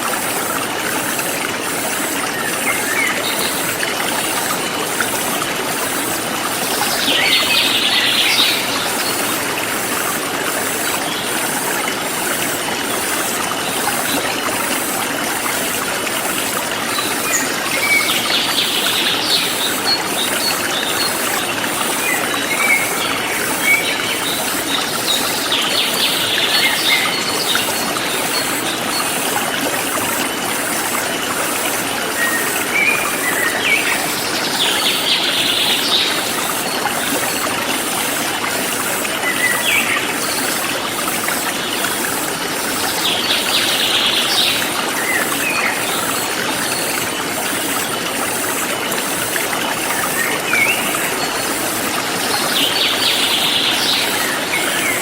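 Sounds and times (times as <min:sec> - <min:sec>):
stream flowing: 0:00.0 - 0:55.0.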